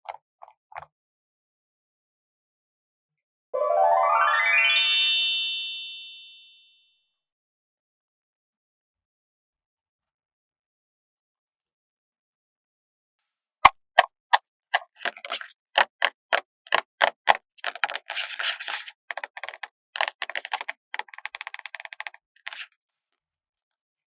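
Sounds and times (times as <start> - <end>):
sharp taps on paper stickers: 14.8 - 22.7
sticker peeling crackle: 14.8 - 22.7.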